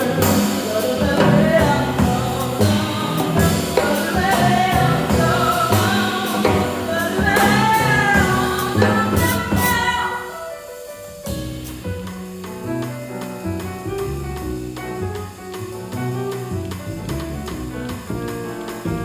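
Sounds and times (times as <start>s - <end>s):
bass line: 0.0s - 10.1s, 11.3s - 19.0s
person singing jazz vocal: 0.0s - 10.9s.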